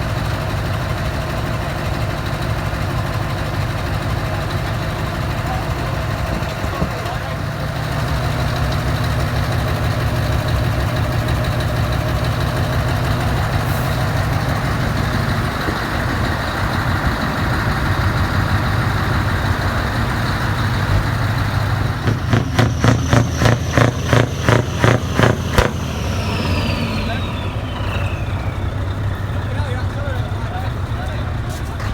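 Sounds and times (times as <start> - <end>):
diesel engine idling: 0.0 - 31.9
short sharp pulses: 22.0 - 28.5.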